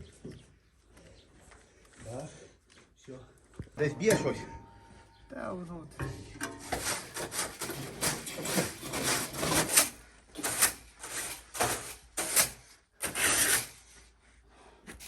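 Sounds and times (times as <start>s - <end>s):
rough rasping strokes: 6.0s - 13.8s.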